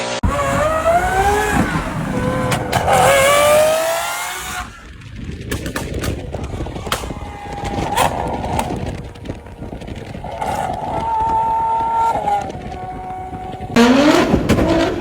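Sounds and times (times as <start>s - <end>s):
vehicle engine at steady revs: 0.0s - 5.8s
rough rolling rumble: 0.2s - 15.0s.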